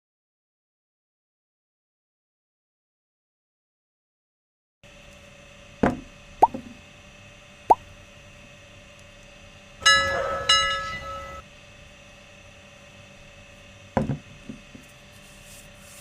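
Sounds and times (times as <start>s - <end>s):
metal clanks ringing: 9.8s - 11.4s.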